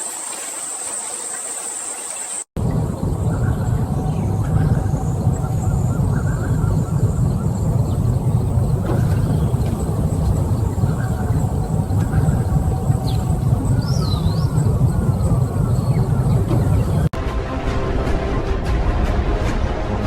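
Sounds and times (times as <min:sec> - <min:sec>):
low outdoor rumble: 0:02.6 - 0:20.0
faint bird chirps: 0:03.2 - 0:17.1.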